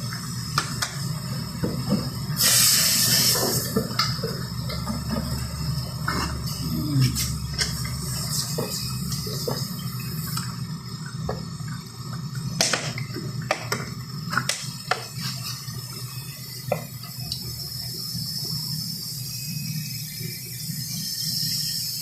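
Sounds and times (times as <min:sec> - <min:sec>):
steady hiss: 0:00.0 - 0:04.1.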